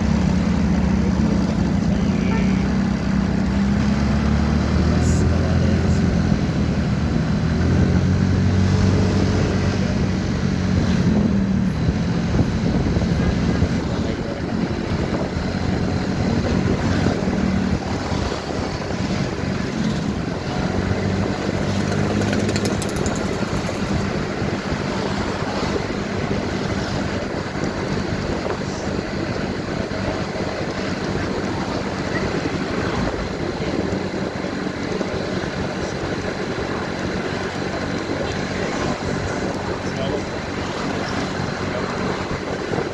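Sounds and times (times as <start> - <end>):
motorcycle engine running: 0.0 - 42.9
wind and road noise: 0.0 - 42.9.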